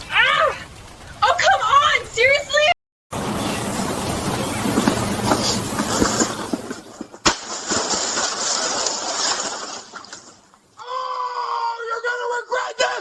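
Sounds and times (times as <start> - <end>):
steady noisy hiss: 0.0 - 10.8
sharp crack: 4.6 - 10.6.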